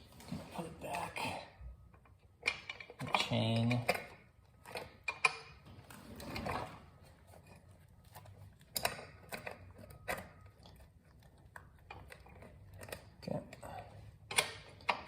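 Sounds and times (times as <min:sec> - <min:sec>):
metallic clicks and rattles: 0:02.0 - 0:06.8.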